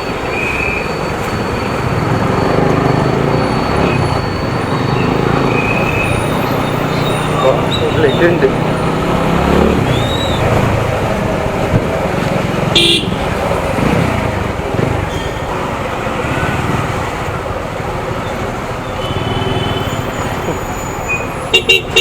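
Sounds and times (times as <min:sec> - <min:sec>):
road noise: 0:00.0 - 0:22.0
motorcycle engine: 0:00.2 - 0:22.0
vehicle horn honks: 0:12.7 - 0:13.4, 0:19.0 - 0:20.1, 0:21.5 - 0:22.0.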